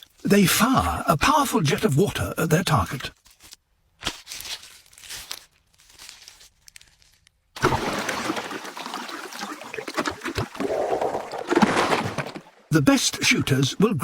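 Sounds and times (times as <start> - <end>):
water splashing and trickling: 7.6 - 13.3.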